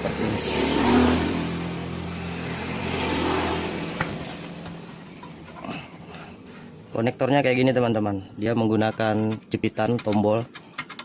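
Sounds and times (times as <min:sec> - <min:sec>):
vehicle engine passing by: 0:00.0 - 0:05.2
road noise: 0:00.0 - 0:08.1.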